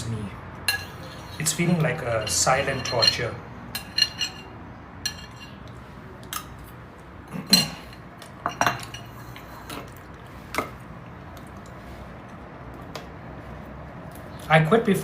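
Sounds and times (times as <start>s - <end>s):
spoon clinking against bowl: 0.7s - 5.6s.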